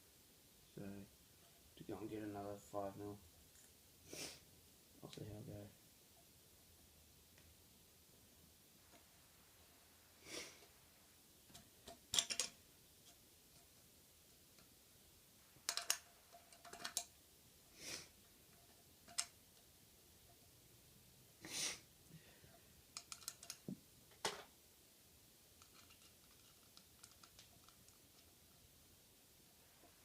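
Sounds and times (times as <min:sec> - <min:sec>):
scooter parts clicking and clinking: 0:11.5 - 0:12.6.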